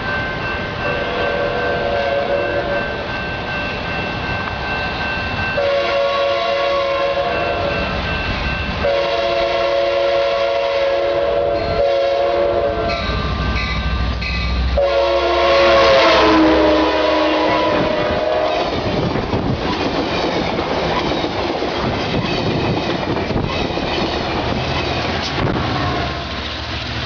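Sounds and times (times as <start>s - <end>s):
train passing rumble: 0.0s - 27.0s
locomotive air horn blasts: 0.9s - 2.9s, 5.6s - 7.8s, 8.8s - 13.1s, 14.7s - 18.8s.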